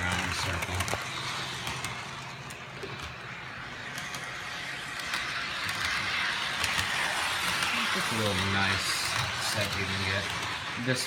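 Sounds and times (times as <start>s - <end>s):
toy trolley motor whir: 0.0s - 11.0s.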